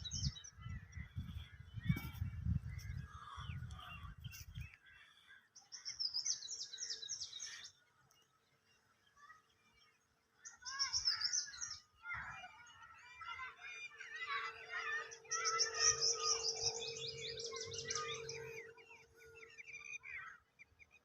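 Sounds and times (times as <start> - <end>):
birds calling and singing: 0.0 - 21.0
fast high bird trill: 13.9 - 20.3.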